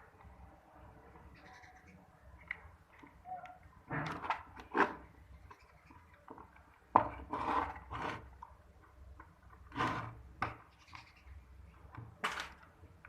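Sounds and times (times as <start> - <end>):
parts scraping and knocking: 3.9 - 8.5, 9.2 - 10.7.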